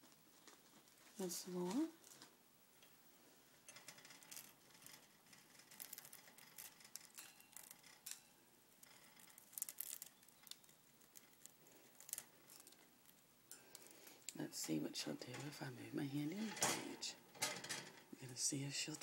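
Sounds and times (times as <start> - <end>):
bird beak crunching cereal: 8.8 - 14.4.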